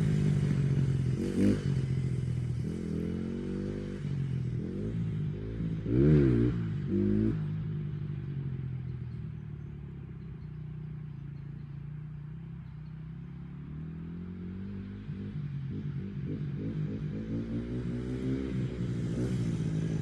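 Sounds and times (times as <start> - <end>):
dirt bike engine revving: 0.0 - 7.5, 13.4 - 20.0.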